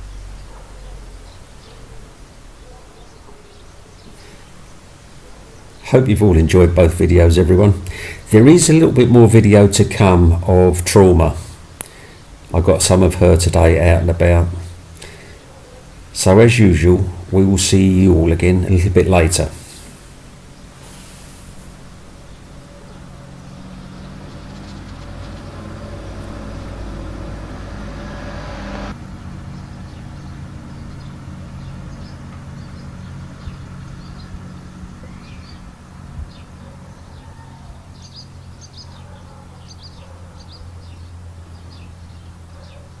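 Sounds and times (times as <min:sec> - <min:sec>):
small birds chirping: 0:00.0 - 0:43.0
low engine-like hum: 0:05.3 - 0:42.5
loud rushing noise: 0:23.3 - 0:29.3.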